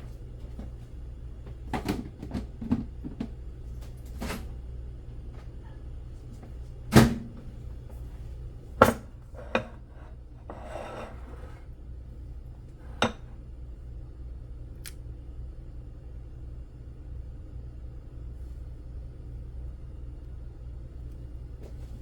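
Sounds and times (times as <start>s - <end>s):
steady low hum: 0.0s - 22.0s
dishes clinking and knocking: 8.8s - 11.6s, 12.9s - 13.3s
dish scraping: 9.3s - 11.7s
small click: 14.8s - 15.0s.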